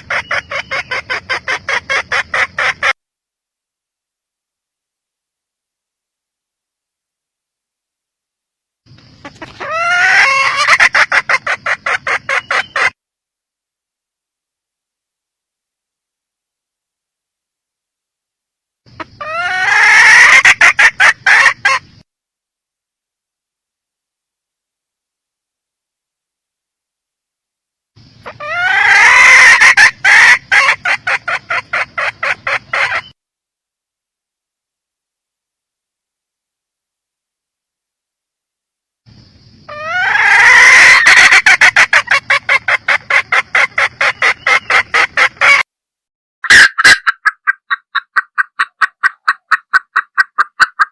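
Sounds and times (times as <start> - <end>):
junglefowl hen cackling: 0.0 - 3.0, 9.2 - 13.0, 18.9 - 22.0, 28.0 - 33.2, 39.6 - 45.7, 46.4 - 50.9.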